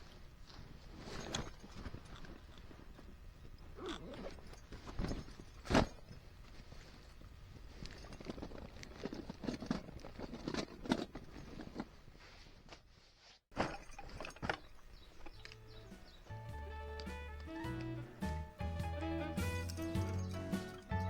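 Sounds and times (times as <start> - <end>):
soft music with low bass: 15.6 - 21.0.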